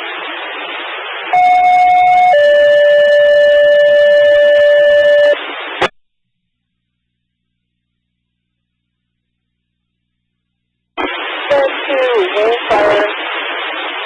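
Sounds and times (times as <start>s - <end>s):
two-tone radio page: 11.0s - 13.6s
radio hiss: 11.0s - 14.0s.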